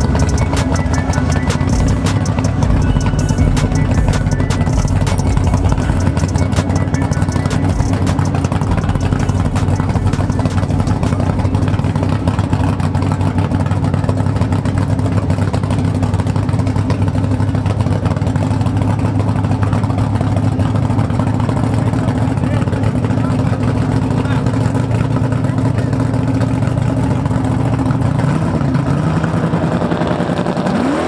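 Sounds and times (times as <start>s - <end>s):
music: 0.0s - 12.3s
race car engines running: 0.0s - 31.0s.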